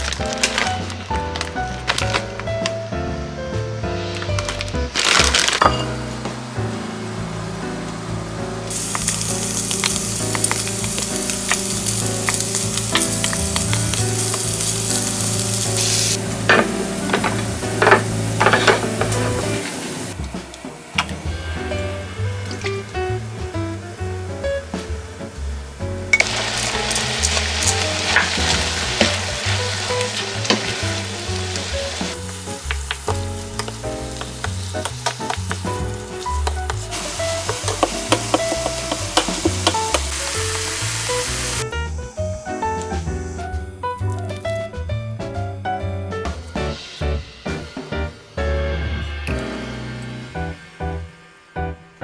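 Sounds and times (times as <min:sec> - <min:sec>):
food sizzling in frying pan: 0:04.0 - 0:44.5.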